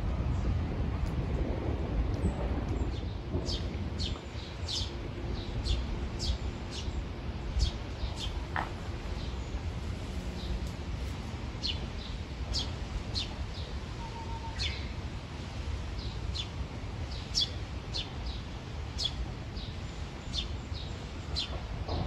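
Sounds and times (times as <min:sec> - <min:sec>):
steady low rumble: 0:00.0 - 0:14.1
songbirds calling: 0:03.0 - 0:15.0, 0:16.0 - 0:21.7.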